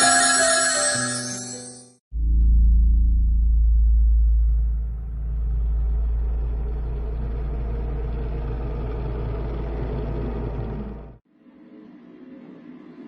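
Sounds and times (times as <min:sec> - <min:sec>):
vehicle rumble: 0:02.2 - 0:11.2
road and engine noise: 0:04.8 - 0:13.0.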